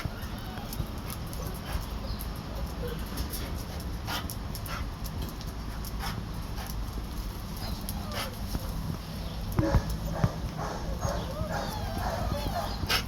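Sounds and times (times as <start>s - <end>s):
dogs whining: 0.0s - 3.4s, 7.6s - 8.8s, 9.6s - 13.0s
low background hum: 0.0s - 13.0s
dogs barking: 9.5s - 13.0s.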